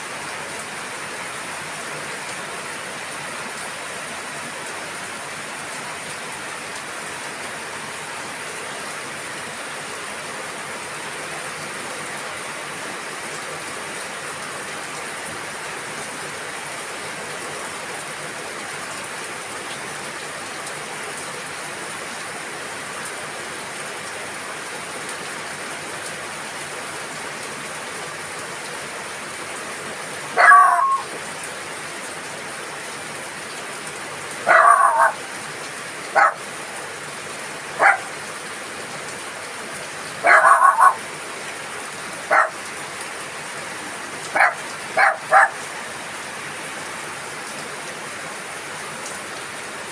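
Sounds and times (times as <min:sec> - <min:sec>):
rain falling: 0:00.0 - 0:49.9
dog barking: 0:30.4 - 0:31.1, 0:34.4 - 0:35.2, 0:36.1 - 0:36.4, 0:37.8 - 0:38.1, 0:40.2 - 0:41.0, 0:42.3 - 0:42.6, 0:44.3 - 0:45.6.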